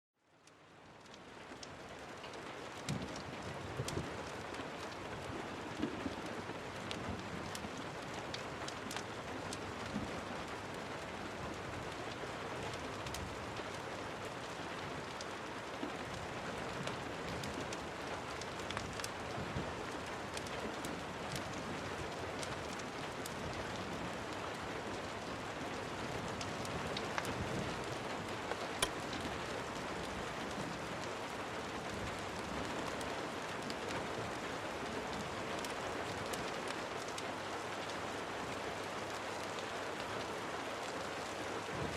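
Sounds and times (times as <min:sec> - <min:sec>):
steady rain falling: 0:00.2 - 0:41.9
sharp clicks and pops: 0:28.8 - 0:29.3.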